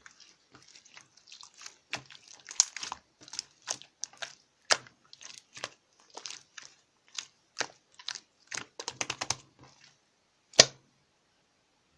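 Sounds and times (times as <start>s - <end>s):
slime clicking and crackling: 0.0s - 10.0s
loud slime pop: 10.5s - 10.8s.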